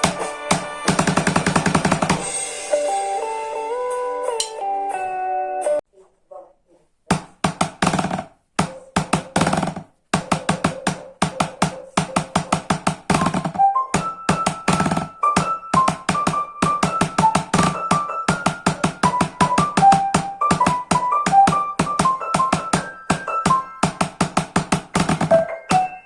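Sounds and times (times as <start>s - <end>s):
steady drum beat: 0.0s - 2.7s
keyboard melody: 0.0s - 5.8s, 12.0s - 26.0s.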